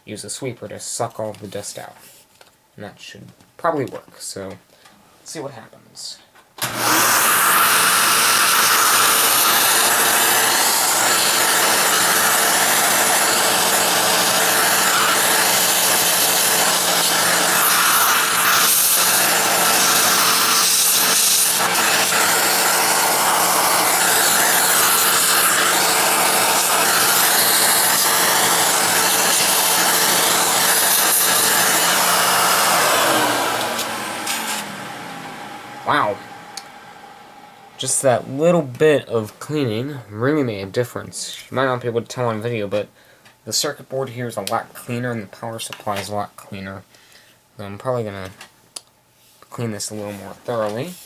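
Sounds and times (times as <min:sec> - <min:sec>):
vacuum cleaner running: 0:06.6 - 0:38.7.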